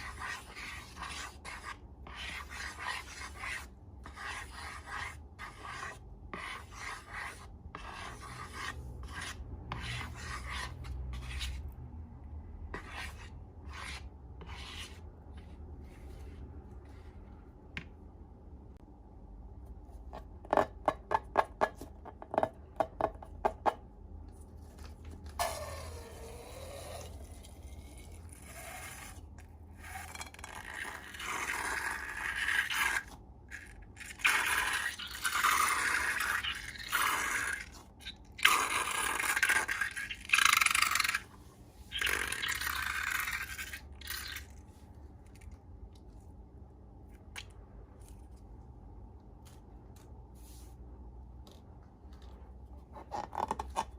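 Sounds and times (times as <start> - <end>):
slime scraping and squelching: 24.5 - 45.8.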